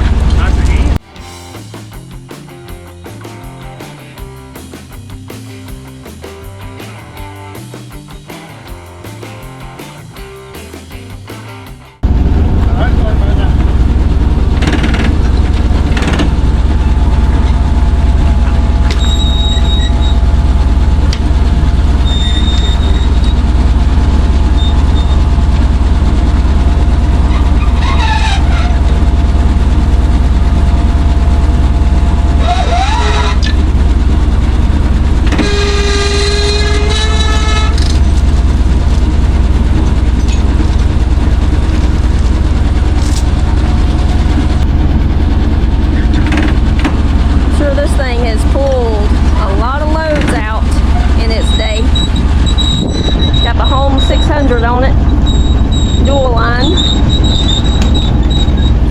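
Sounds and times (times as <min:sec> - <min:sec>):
truck engine rumbling: 0:00.0 - 0:58.9
gliding squeal: 0:18.4 - 0:20.3, 0:21.8 - 0:23.6, 0:27.3 - 0:29.0, 0:32.4 - 0:33.7, 0:35.4 - 0:38.3, 0:50.4 - 0:58.9
short horn-like tone: 0:32.4 - 0:33.6, 0:35.3 - 0:38.3.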